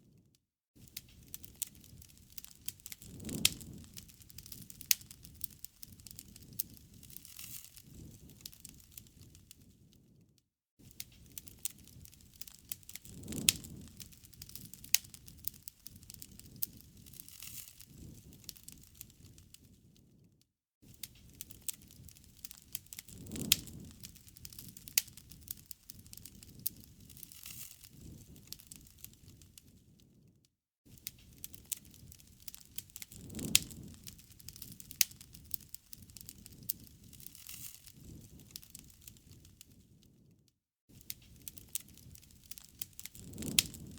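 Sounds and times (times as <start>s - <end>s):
campfire crackling and popping: 0.8s - 10.2s, 10.8s - 20.2s, 20.8s - 30.2s, 30.9s - 43.9s
low rush of flames: 0.8s - 10.2s, 10.8s - 30.3s, 30.9s - 43.9s.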